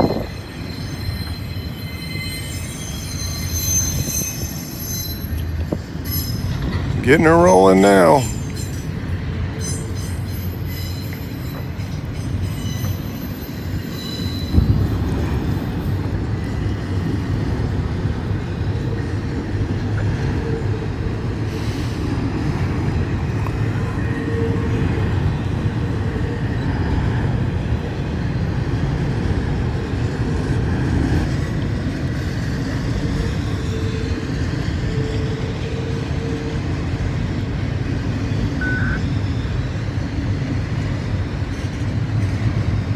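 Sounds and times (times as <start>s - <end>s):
faint wheel squeals: 0.0s - 6.7s
freight train rumbling on rails: 0.0s - 42.9s.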